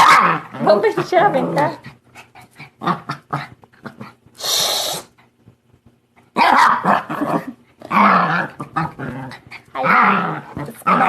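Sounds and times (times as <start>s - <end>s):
dog barking and growling: 0.0s - 2.0s, 2.6s - 4.2s, 6.3s - 11.0s.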